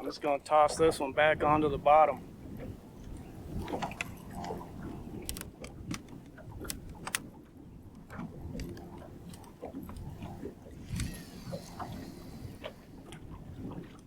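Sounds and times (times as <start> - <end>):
wind rumble on microphone: 0.0 - 14.0
fishing reel clicks and rattles: 8.6 - 13.2.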